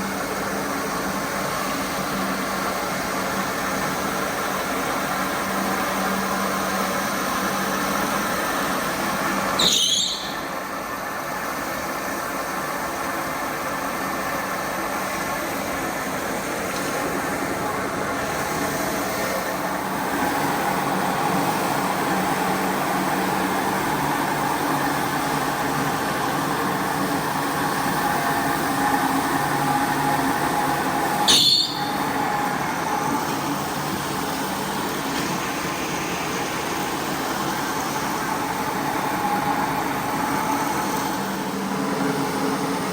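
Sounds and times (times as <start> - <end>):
carpet cleaner motor running: 0.0 - 9.5, 10.5 - 31.2, 31.8 - 42.9
loud high squeak: 9.6 - 10.6, 31.3 - 32.0.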